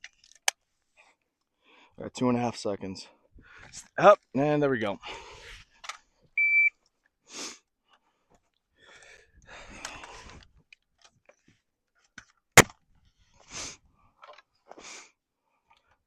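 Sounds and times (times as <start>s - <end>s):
shot timer beep: 6.4s - 6.7s.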